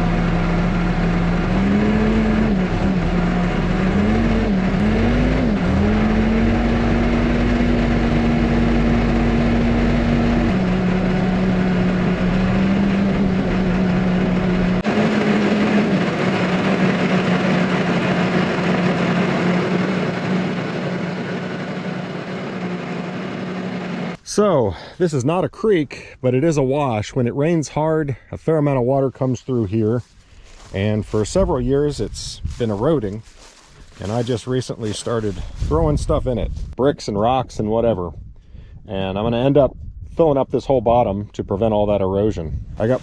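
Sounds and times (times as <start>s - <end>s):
excavator diesel engine working: 0.0s - 24.2s.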